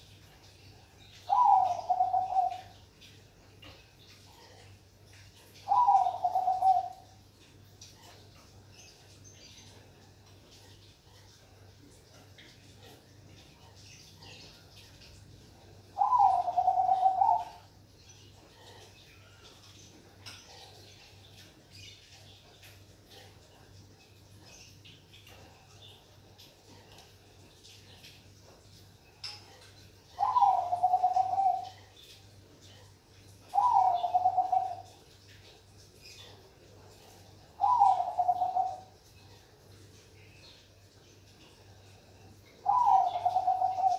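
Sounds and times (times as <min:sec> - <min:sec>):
dove rolling coo: 0:01.3 - 0:02.8, 0:05.7 - 0:07.1, 0:16.0 - 0:17.6, 0:30.2 - 0:31.8, 0:33.5 - 0:35.0, 0:37.6 - 0:39.0, 0:42.6 - 0:43.9.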